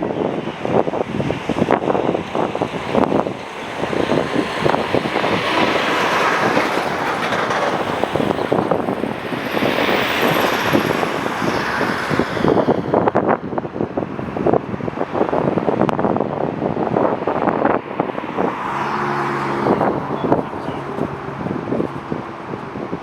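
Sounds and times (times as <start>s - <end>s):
wind buffeting microphone: 0.0s - 23.0s
jet airliner passing: 0.3s - 13.6s.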